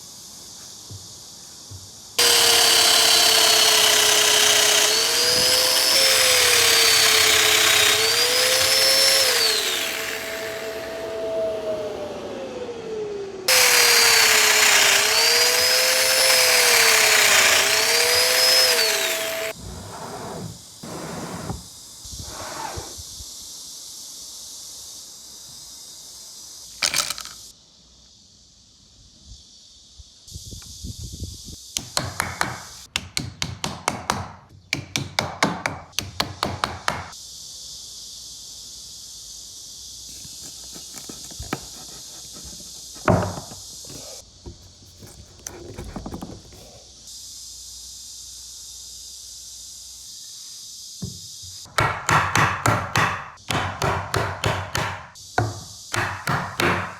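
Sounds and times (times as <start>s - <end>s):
steady hiss: 0.0s - 2.2s, 19.5s - 31.8s, 37.1s - 45.1s.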